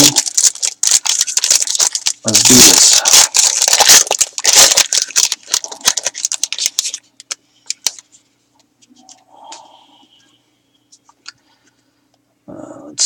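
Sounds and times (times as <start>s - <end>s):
wrapper crinkling and tearing: 0.0s - 8.1s.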